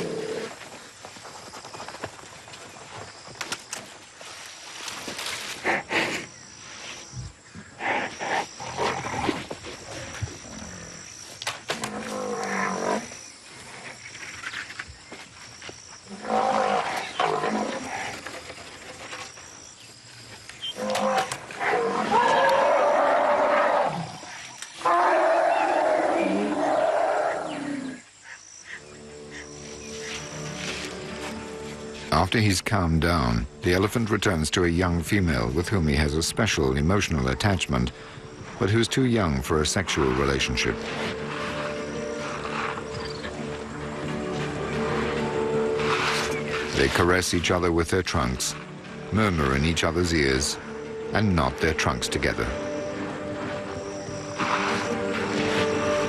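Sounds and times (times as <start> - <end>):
elephant trumpeting: 20.8 - 28.0, 53.6 - 56.0.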